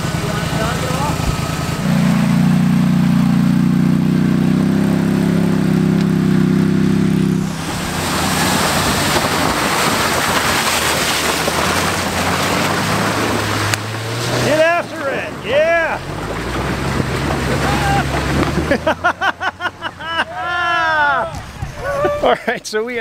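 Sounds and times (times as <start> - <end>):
car engine running hard: 0.0 - 22.0
loud rushing noise: 6.4 - 16.1.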